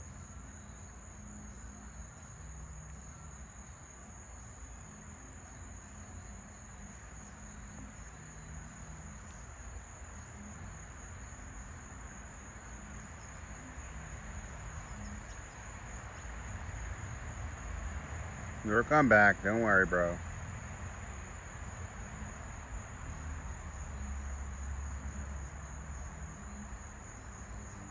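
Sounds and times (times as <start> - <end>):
crickets trilling: 0.0 - 27.9.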